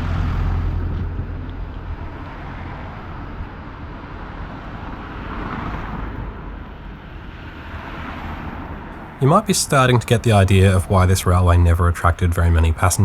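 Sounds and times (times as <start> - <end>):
street traffic: 0.0 - 13.0
tram rumbling past: 0.0 - 13.0.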